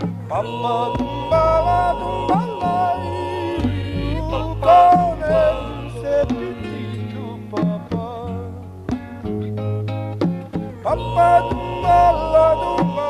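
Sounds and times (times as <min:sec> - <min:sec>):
acoustic guitar: 0:00.0 - 0:13.0
sustained chords: 0:00.3 - 0:07.6
person singing long sliding notes: 0:00.3 - 0:08.2, 0:10.8 - 0:13.0.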